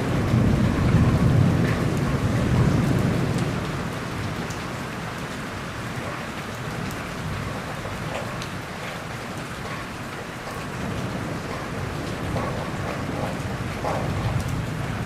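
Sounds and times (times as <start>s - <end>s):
steady rain falling: 0.0s - 15.0s
thunder rumble: 0.0s - 15.0s
drops ticking on a surface: 4.4s - 15.0s.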